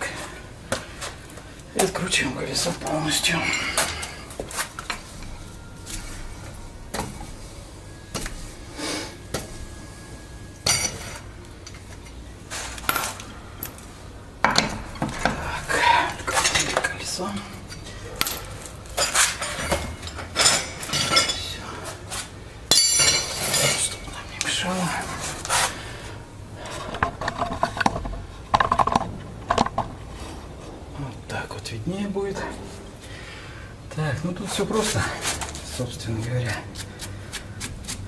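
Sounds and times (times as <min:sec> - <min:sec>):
wheel wrench and lug nuts clinking: 0:12.8 - 0:13.9, 0:18.1 - 0:21.4, 0:26.6 - 0:30.3.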